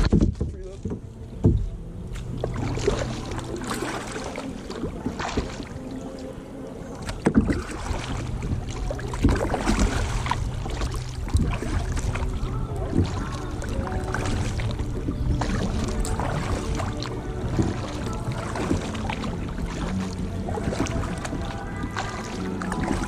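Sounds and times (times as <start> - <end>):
sharp knocks: 0.0 - 1.7
paddle strokes splashing: 0.0 - 23.0.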